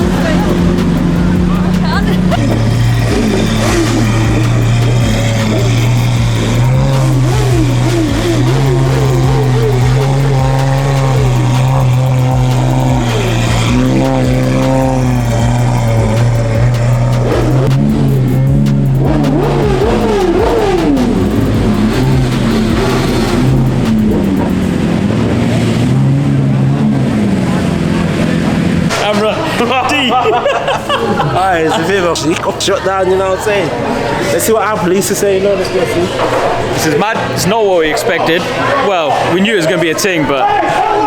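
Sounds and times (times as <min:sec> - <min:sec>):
steady low drone: 0:00.0 - 0:29.0
car engines revving: 0:00.0 - 0:41.0.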